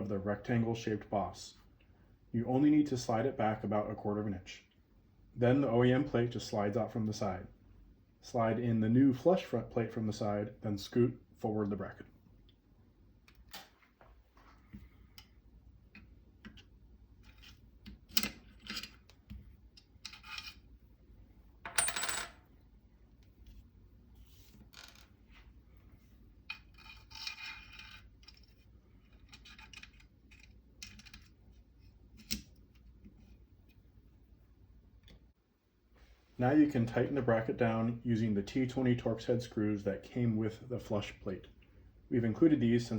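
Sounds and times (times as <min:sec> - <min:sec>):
small metal parts clicking and scraping: 0:17.2 - 0:19.2, 0:19.8 - 0:20.6, 0:26.5 - 0:31.4.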